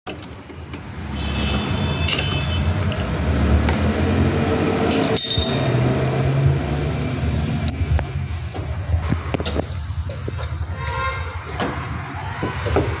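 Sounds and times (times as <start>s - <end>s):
car engine humming: 2.8s - 10.8s.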